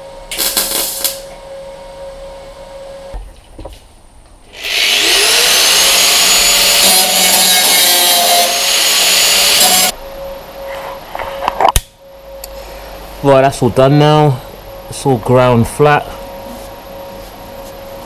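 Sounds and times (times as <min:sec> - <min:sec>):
angle grinder grinding metal: 0:04.6 - 0:10.0.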